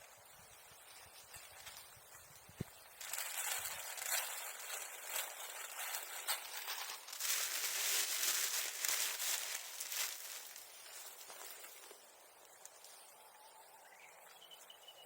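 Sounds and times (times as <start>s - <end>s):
bonfire crackling: 2.0s - 12.8s.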